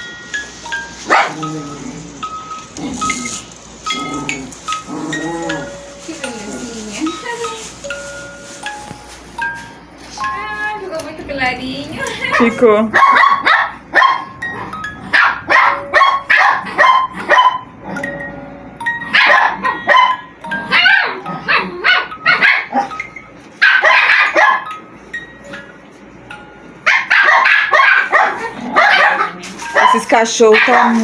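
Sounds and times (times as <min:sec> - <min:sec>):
tinkly tune: 0:00.0 - 0:12.8, 0:14.3 - 0:16.3, 0:17.8 - 0:23.6, 0:24.2 - 0:26.9
dogs barking: 0:01.0 - 0:01.7, 0:12.2 - 0:18.1, 0:19.0 - 0:24.8, 0:26.8 - 0:31.0.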